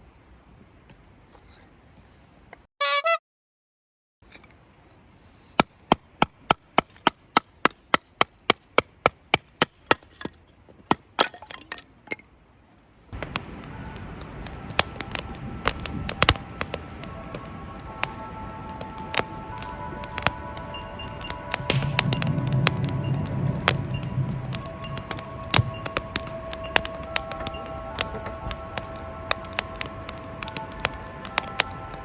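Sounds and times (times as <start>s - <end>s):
background music: 13.2s - 32.0s.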